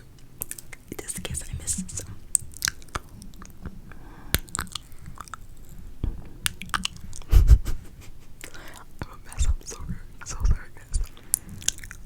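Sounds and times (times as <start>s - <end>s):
mouth clicks and smacks: 0.4s - 12.0s
low bump: 1.1s - 2.7s.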